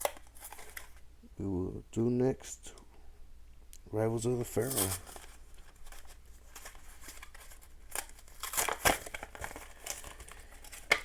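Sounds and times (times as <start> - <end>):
foil wrapper crinkling and tearing: 0.0 - 1.0, 4.5 - 11.0.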